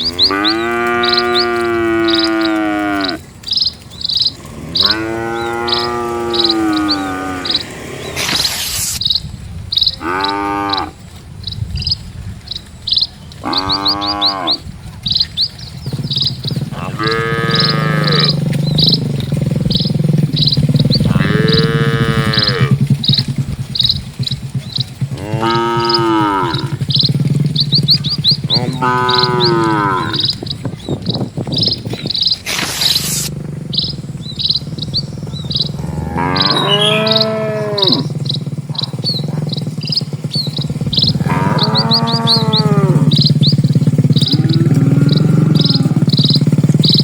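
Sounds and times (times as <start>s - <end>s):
cattle mooing: 0.0s - 3.3s, 4.2s - 8.7s, 9.9s - 11.0s, 13.4s - 14.6s, 16.4s - 23.2s, 24.9s - 30.6s, 32.5s - 39.8s, 40.5s - 47.0s
small birds chirping: 0.0s - 47.0s.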